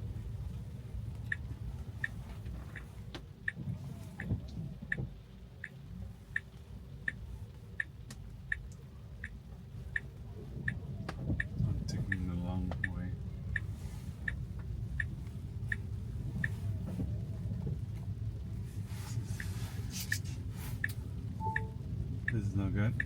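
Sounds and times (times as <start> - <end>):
road noise rumble inside car: 0.0 - 23.0
turn signal ticking: 0.1 - 23.0.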